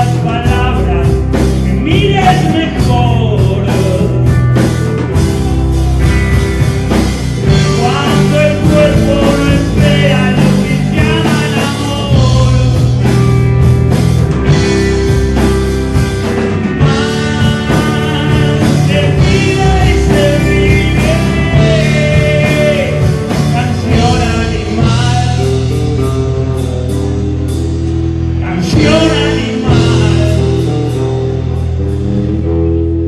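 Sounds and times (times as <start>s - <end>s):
rock band playing: 0.0s - 33.0s
lead vocal singing long notes: 7.4s - 13.0s, 16.8s - 27.2s, 28.4s - 30.7s.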